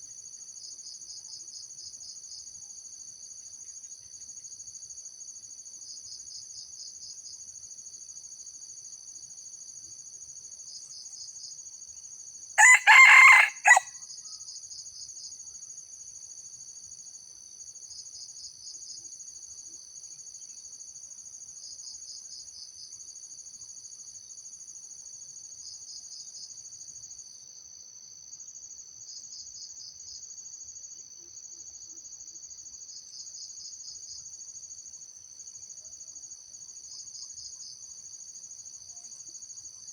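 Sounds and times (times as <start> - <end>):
insects chorus with pulsing trill: 0.4 - 39.9
rooster crowing: 12.6 - 13.9.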